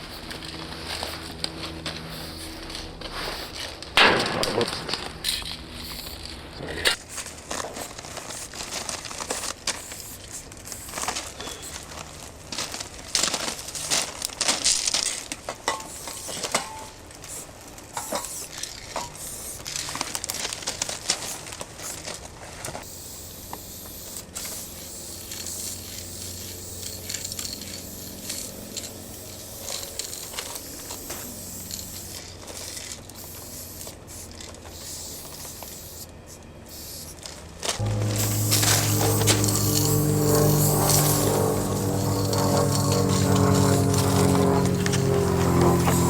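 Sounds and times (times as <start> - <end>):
spray-paint cans hissing: 2.0 - 3.8, 5.2 - 6.3, 7.0 - 12.0, 15.7 - 19.8, 22.8 - 36.1, 36.7 - 37.2, 37.8 - 44.7.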